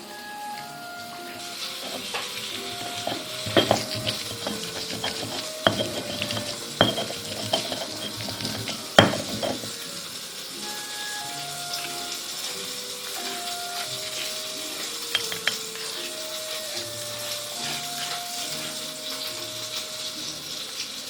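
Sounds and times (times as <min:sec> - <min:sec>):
food sizzling in frying pan: 0:00.0 - 0:21.0
utensil scraping and knocking pan: 0:01.8 - 0:09.8, 0:15.1 - 0:16.0.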